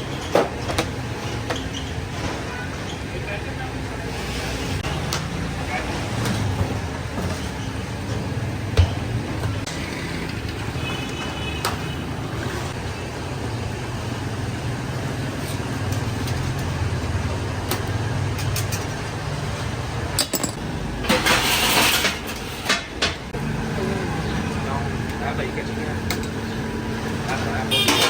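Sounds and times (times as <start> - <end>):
traffic rumble: 0.0 - 28.0
metallic clinks and clicks: 20.2 - 20.6.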